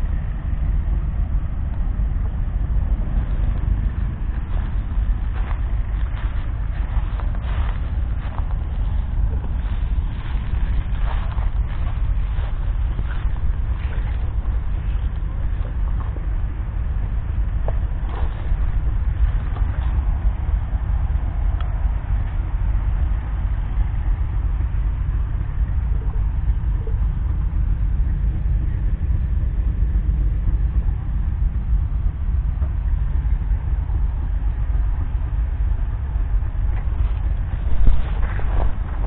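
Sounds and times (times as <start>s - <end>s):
diesel engine rumbling: 0.0s - 39.0s.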